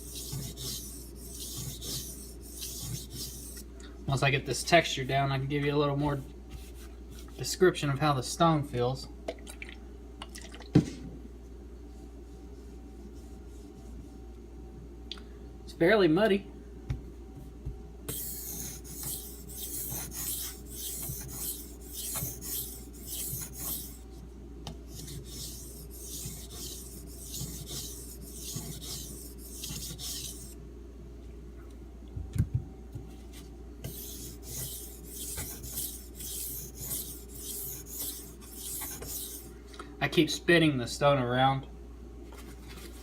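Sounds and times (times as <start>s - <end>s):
knife rasping on whetstone: 0.0s - 3.6s, 18.1s - 24.0s, 24.9s - 30.6s, 33.8s - 39.5s.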